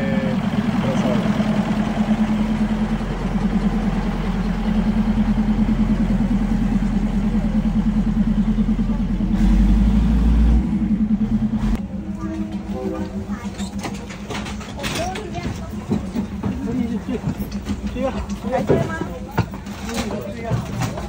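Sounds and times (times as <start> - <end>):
diesel railcar engine drone: 0.0 - 21.0
train rumble: 0.0 - 21.0.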